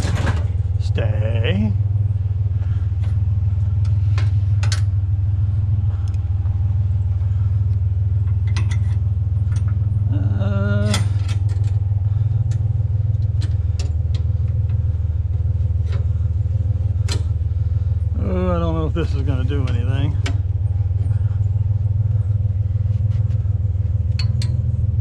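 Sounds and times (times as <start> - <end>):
truck engine running: 0.0 - 25.0
light clicks and rattles: 7.7 - 10.0, 10.8 - 17.5, 18.9 - 24.9.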